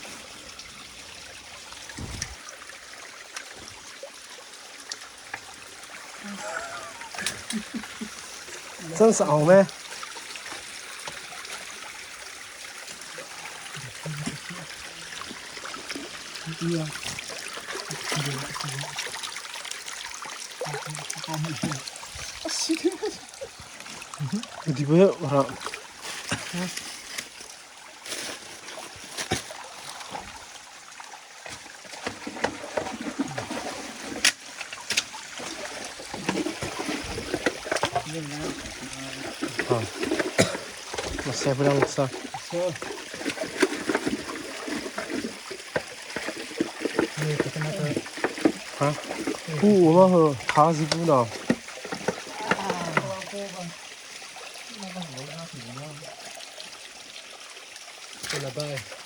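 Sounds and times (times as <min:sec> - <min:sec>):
stream trickling over stones: 0:00.0 - 0:59.0
short sharp water splashes: 0:01.8 - 0:02.7.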